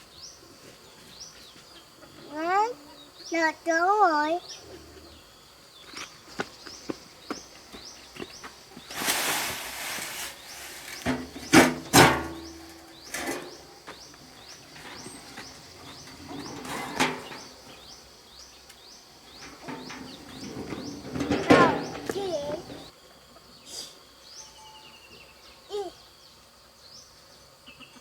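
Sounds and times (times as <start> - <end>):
bird chirping: 0.0 - 9.0, 10.4 - 28.0
rustling: 8.2 - 18.0.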